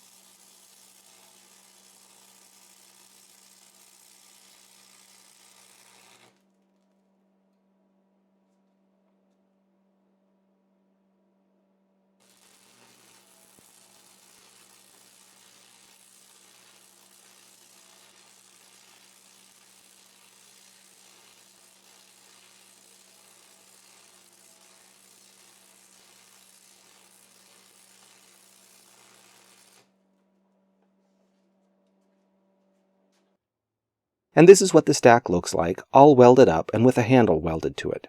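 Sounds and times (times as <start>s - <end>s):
arc welder crackling hiss: 0.0s - 6.4s, 12.2s - 29.9s
low welder buzz: 0.0s - 7.2s, 12.2s - 33.3s.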